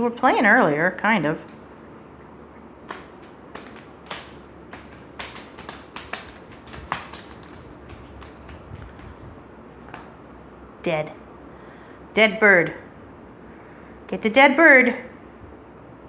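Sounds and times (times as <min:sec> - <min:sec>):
low steady hum: 0:00.0 - 0:16.0
light clicks and taps: 0:02.9 - 0:10.2.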